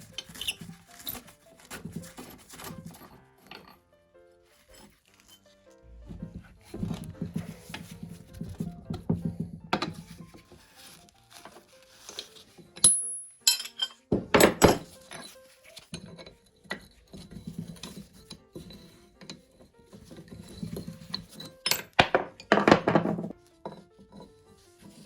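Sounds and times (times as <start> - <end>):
metal parts clattering: 0.0 - 3.8, 12.0 - 23.3.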